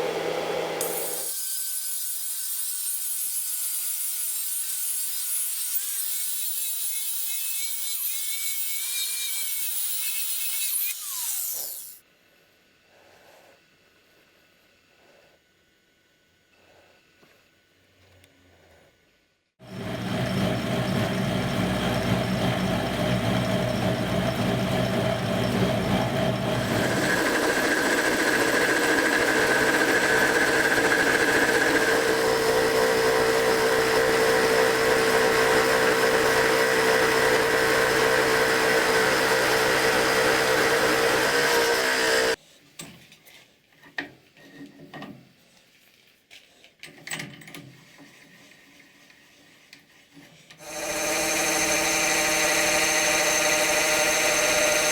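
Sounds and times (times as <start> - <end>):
power tool whining: 0.0 - 1.4, 19.6 - 42.4, 50.6 - 54.9.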